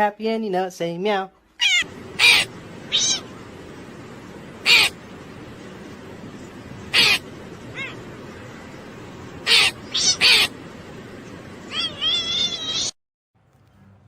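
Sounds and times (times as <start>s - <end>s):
cat meowing: 1.6s - 3.3s, 6.9s - 8.0s, 9.4s - 10.5s, 11.7s - 13.0s.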